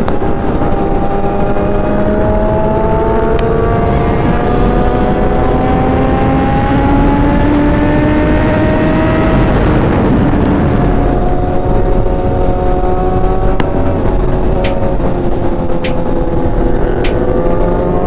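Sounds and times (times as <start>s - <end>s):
motorcycle engine running hard: 0.0s - 18.0s
wind noise on microphone: 0.0s - 18.0s.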